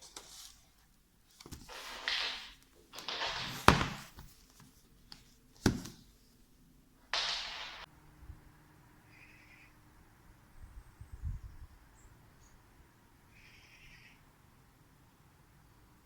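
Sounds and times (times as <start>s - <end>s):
hard thunks: 2.1s - 4.3s.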